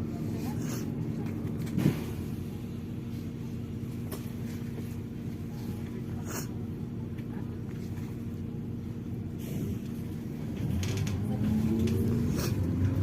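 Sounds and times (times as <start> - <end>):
bus engine and road drone: 0.0 - 13.0
constant low hum: 0.0 - 13.0.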